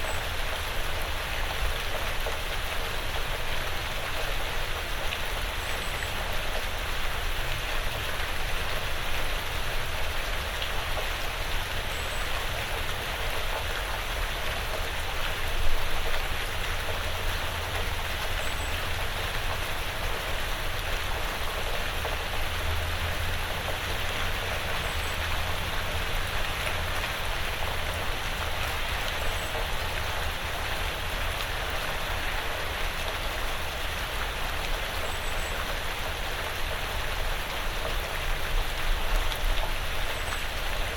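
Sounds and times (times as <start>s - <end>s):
light rain on a roof: 0.0s - 40.9s.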